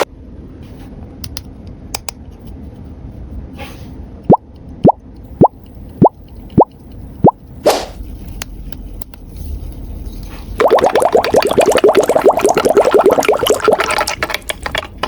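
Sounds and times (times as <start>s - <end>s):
cartoon pops rising in pitch: 10.6s - 14.0s.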